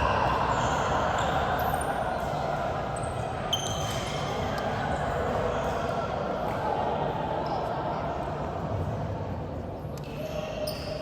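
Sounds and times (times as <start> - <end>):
sneakers squeaking: 0.0 - 4.6, 10.0 - 11.0.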